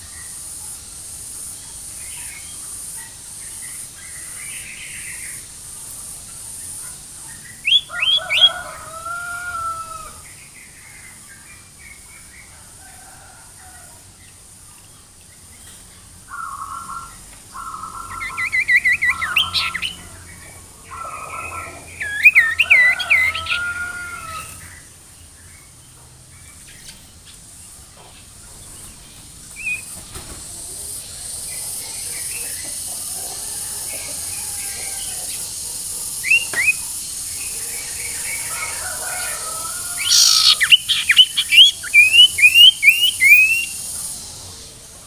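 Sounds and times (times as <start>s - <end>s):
steady high hiss: 0.0s - 45.0s
bird sweeping chirps: 36.2s - 43.8s
bird whistled notes: 40.0s - 43.8s.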